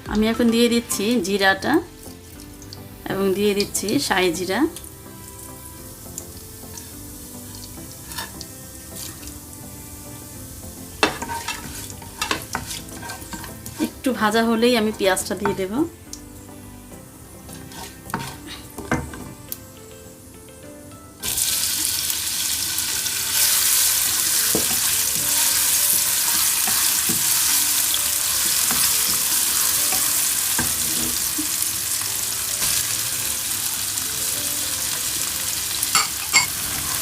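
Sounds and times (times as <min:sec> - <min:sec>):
spices frying in oil: 0:00.0 - 0:20.3, 0:21.2 - 0:37.0
onion sizzling in hot oil: 0:00.0 - 0:20.4, 0:21.1 - 0:37.0.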